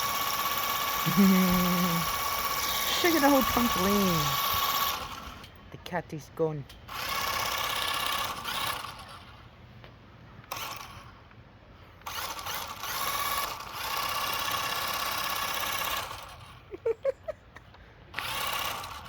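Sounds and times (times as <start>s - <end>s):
toy car electric motor whining: 0.0s - 5.5s, 6.9s - 9.4s, 10.5s - 11.1s, 12.0s - 16.6s, 18.1s - 19.0s.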